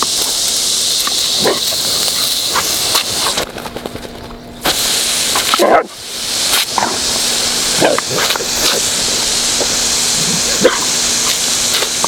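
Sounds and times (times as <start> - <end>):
hose water spray hissing: 0.0 - 3.6, 4.6 - 12.0
dog biting at water spray: 1.0 - 3.5, 6.5 - 9.0, 9.6 - 12.0.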